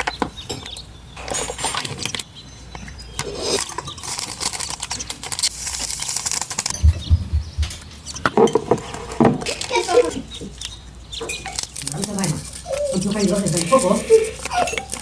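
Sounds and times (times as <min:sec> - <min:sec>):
low thumps: 0:06.7 - 0:08.2
hands scraping and rustling: 0:11.3 - 0:15.0.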